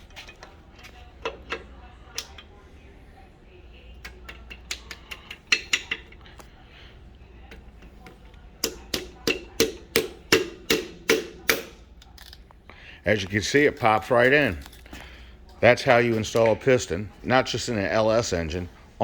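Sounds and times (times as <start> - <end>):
sharp tapping on piston: 4.0 - 6.2, 8.6 - 11.8.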